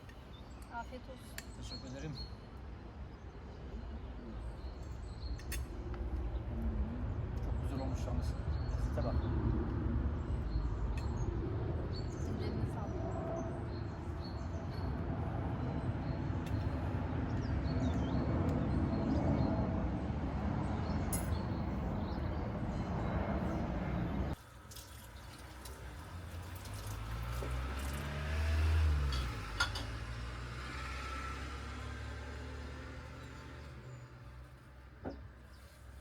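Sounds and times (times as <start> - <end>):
wind-like rumble: 3.8 - 24.4
low engine hum: 25.2 - 36.0.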